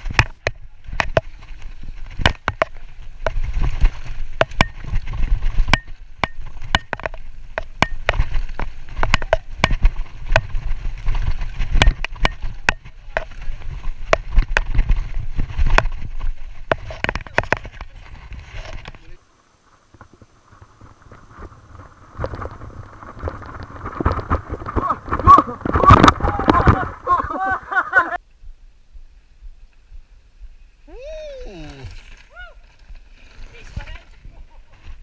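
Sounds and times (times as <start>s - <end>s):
bike clattering over rocks: 0.0s - 19.2s, 19.9s - 28.2s
bike tyres rumbling on dirt: 0.0s - 28.2s.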